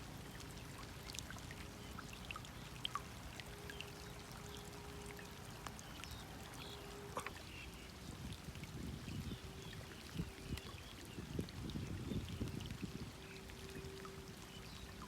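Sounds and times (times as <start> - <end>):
rainwater pouring and trickling: 0.0 - 15.0
water drops ticking: 0.3 - 7.6.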